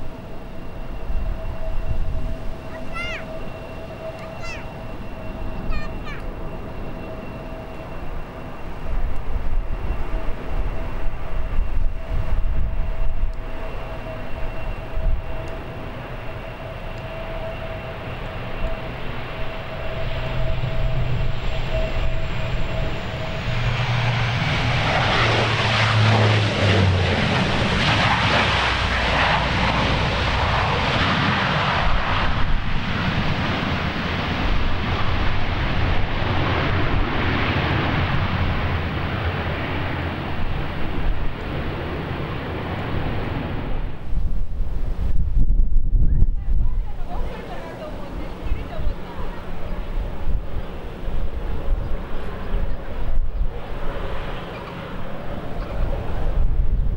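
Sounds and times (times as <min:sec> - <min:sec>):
propeller whine: 0:00.0 - 0:56.9
roar of aircraft engines: 0:00.0 - 0:56.9
wind rumble on microphone: 0:08.8 - 0:15.5, 0:43.0 - 0:56.9.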